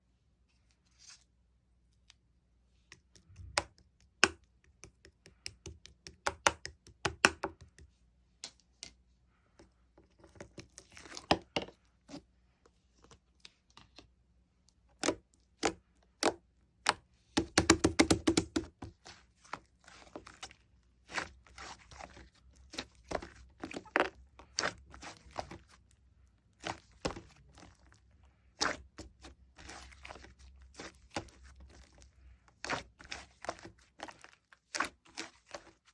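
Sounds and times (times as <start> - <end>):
slime clicking and squishing: 2.9 - 7.9, 15.0 - 35.9.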